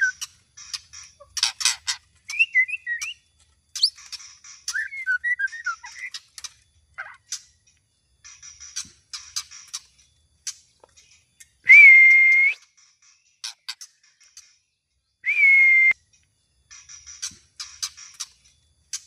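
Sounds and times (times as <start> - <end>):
bird singing clicks and whistles: 0.0 - 3.2, 3.8 - 7.4, 8.3 - 14.6.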